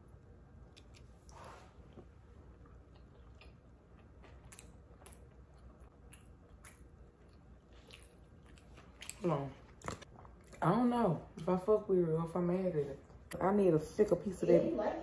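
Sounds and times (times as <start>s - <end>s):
faint chewing: 0.6s - 10.7s.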